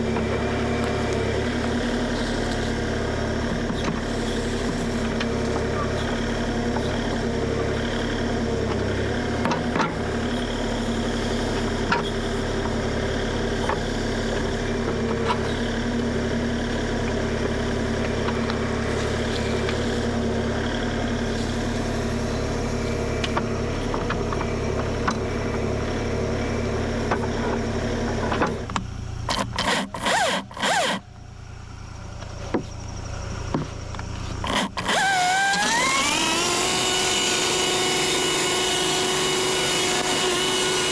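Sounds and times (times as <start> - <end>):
scraping of excavator: 0.0 - 31.1, 32.0 - 40.9
excavator diesel engine running: 0.0 - 40.9
rising whine: 28.2 - 40.9.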